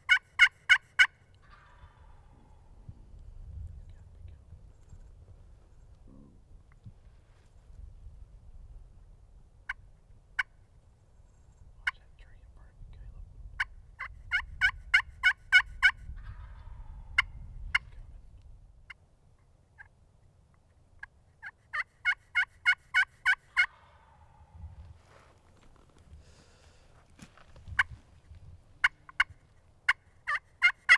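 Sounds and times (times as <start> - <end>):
wild turkey yelps: 0.0 - 2.8, 13.6 - 17.9, 21.0 - 24.6, 28.8 - 30.9
wind rumble on microphone: 1.4 - 10.4, 11.2 - 18.9, 24.3 - 26.4, 27.3 - 29.4.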